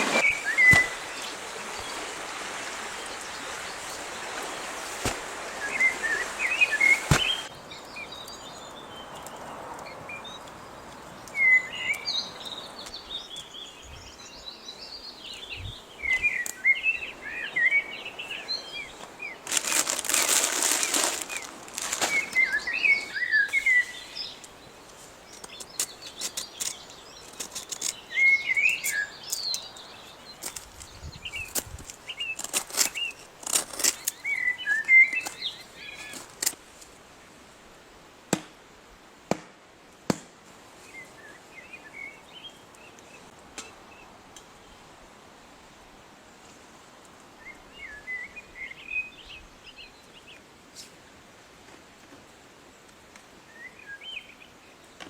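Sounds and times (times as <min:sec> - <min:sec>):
small birds chirping: 0:00.1 - 0:36.5
rustling burst: 0:04.8 - 0:05.8, 0:06.7 - 0:07.5, 0:19.4 - 0:22.6.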